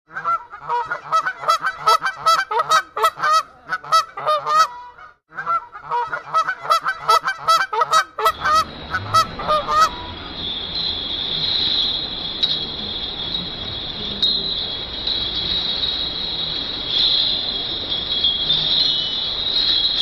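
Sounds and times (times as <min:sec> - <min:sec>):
birds calling: 0:00.2 - 0:13.6
steady high hiss: 0:06.4 - 0:20.0.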